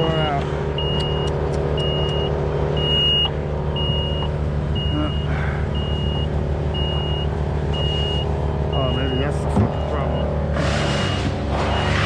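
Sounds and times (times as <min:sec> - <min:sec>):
engine running: 0:00.0 - 0:12.0
warning beeper: 0:00.8 - 0:10.3.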